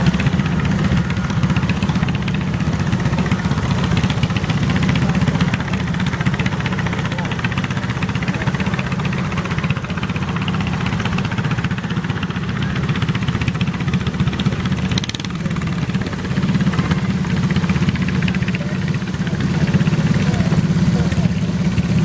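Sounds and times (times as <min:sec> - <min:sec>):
garden tractor engine running: 0:00.0 - 0:22.0.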